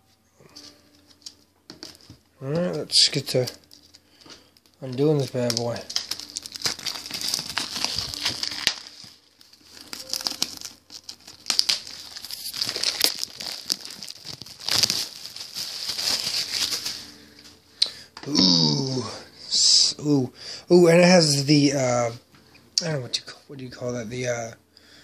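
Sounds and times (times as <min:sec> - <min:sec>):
plastic wrapping crinkling: 0:00.4 - 0:17.6.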